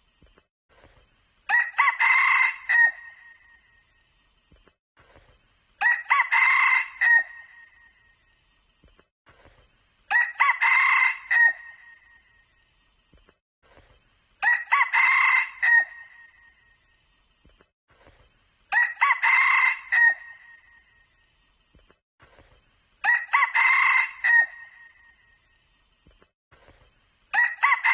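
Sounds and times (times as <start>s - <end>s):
rooster crowing: 1.5s - 3.2s, 5.8s - 7.6s, 10.1s - 11.9s, 14.4s - 16.3s, 18.7s - 20.6s, 23.0s - 24.9s, 27.3s - 27.9s.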